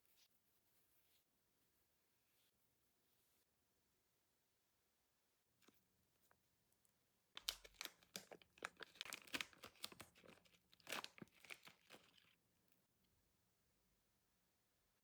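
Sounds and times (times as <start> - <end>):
plastic crinkling: 7.4 - 12.4.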